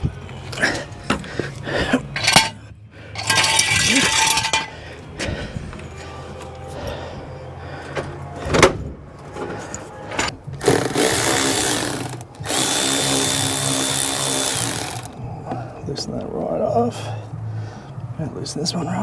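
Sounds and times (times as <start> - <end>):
cordless drill motor whine: 10.8 - 15.1.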